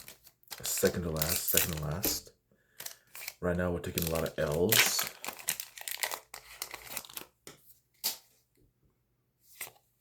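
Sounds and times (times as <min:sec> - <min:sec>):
wrapper tearing and crinkling: 0:00.0 - 0:02.2, 0:02.8 - 0:07.3.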